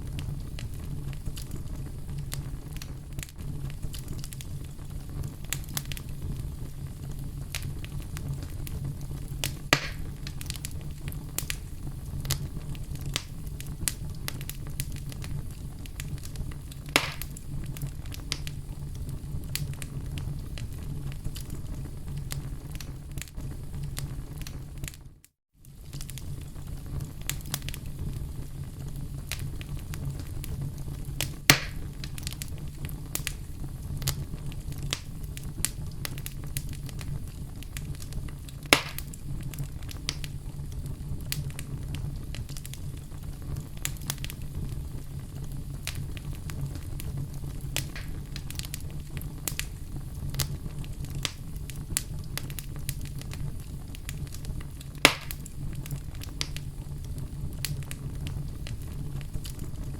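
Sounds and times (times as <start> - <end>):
campfire crackling: 0.0 - 25.0, 25.6 - 59.9
loud fire pops: 0.0 - 59.9.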